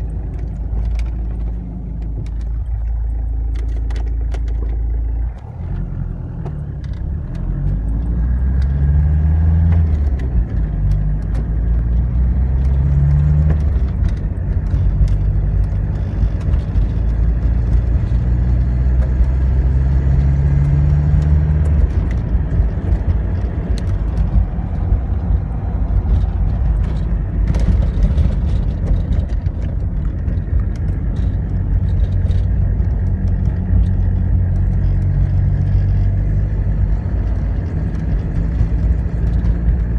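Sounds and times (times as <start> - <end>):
diesel engine accelerating: 0.0 - 39.9
engine clicks: 0.0 - 39.9.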